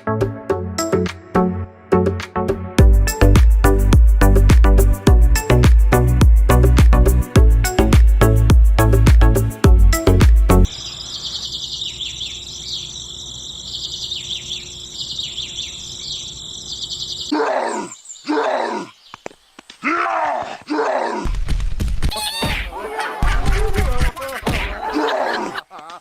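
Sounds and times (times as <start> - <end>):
birds chirping: 9.9 - 21.2.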